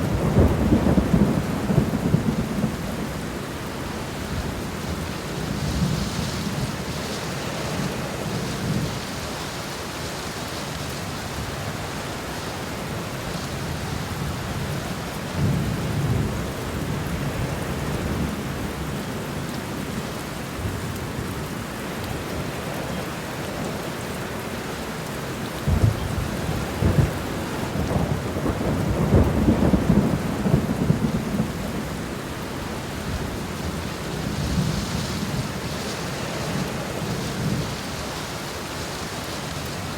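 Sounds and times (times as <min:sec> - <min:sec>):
rain falling: 0:00.0 - 0:39.9
thunder rolling: 0:25.7 - 0:31.9.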